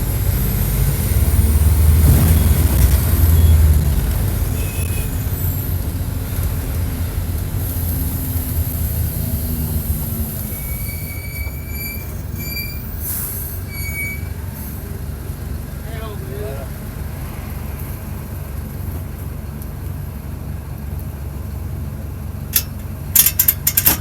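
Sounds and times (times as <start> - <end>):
brake squeals: 0.0 - 19.0
bus diesel engine running: 0.0 - 24.0.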